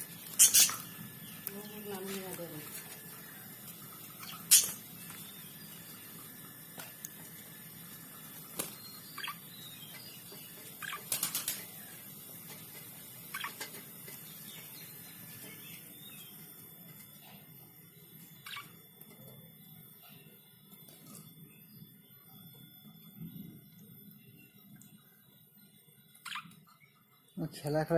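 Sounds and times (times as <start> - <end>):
budgerigars chirping: 0.3 - 0.9, 4.2 - 4.9, 8.9 - 11.3, 13.2 - 13.7, 18.4 - 18.8, 26.2 - 26.6.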